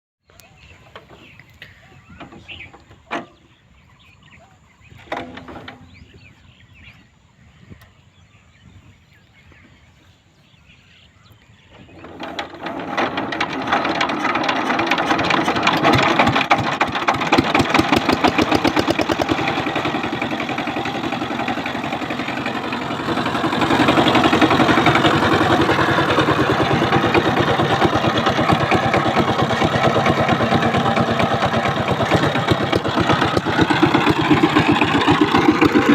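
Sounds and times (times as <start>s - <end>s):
diesel engine starting and running: 11.8s - 35.9s.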